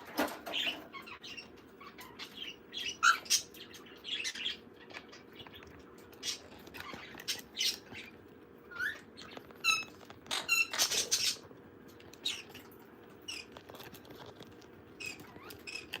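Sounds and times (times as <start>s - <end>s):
parrot chirps and squeaks: 0.1s - 16.0s
parrot harsh squawks: 2.8s - 3.5s.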